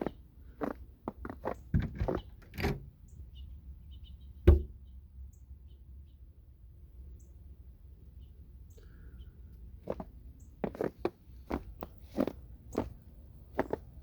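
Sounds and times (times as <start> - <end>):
loud thump: 4.5 - 4.8.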